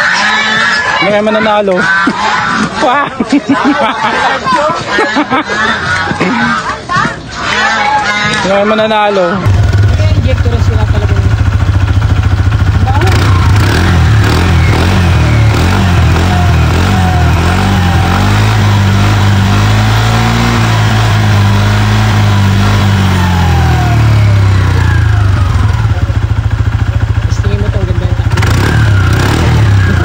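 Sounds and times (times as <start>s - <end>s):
scooter engine revving and idling: 9.4s - 30.0s.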